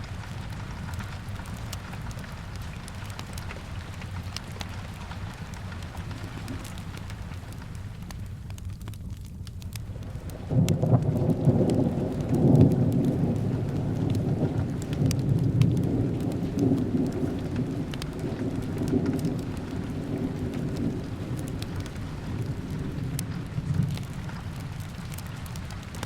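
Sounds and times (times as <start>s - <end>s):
fireplace crackling: 0.0s - 26.0s
steady rain: 0.0s - 26.0s
rolling thunder: 10.4s - 26.0s.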